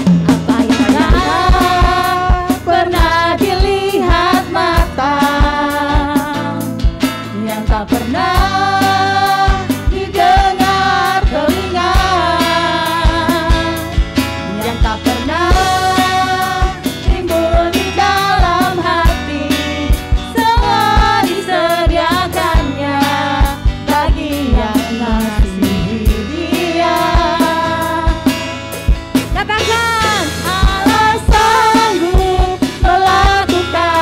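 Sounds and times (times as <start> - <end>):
person singing: 0.0 - 13.9, 14.5 - 28.3, 29.4 - 34.0
guitar: 0.0 - 34.0
steady drum beat: 0.0 - 34.0.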